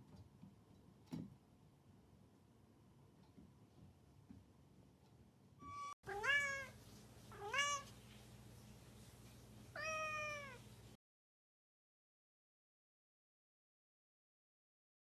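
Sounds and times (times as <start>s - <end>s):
cat meowing: 5.6s - 8.0s, 9.8s - 10.7s.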